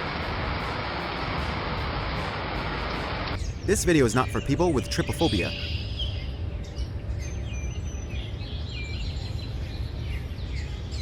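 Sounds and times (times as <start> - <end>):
low outdoor rumble: 0.0 - 5.0
small birds chirping: 3.4 - 11.0.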